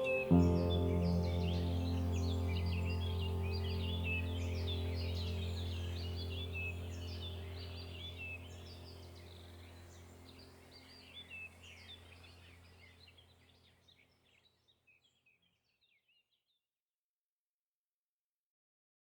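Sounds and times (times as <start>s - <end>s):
low steady drone: 0.0s - 12.4s
birds chirping: 0.0s - 15.2s.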